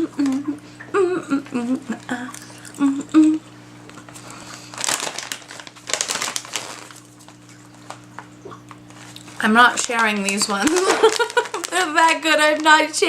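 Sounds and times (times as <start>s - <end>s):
plastic chip bag crinkling: 3.8s - 13.0s.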